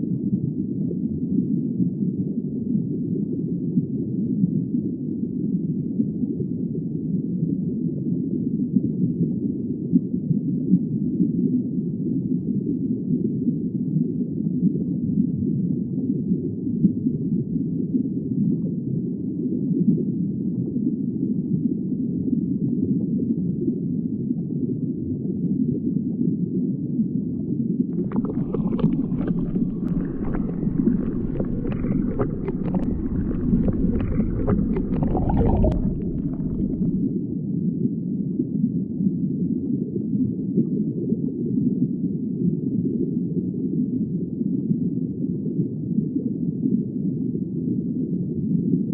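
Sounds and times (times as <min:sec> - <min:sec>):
underwater clicking and crackling: 0:27.9 - 0:37.1
underwater low rumble: 0:27.9 - 0:37.3.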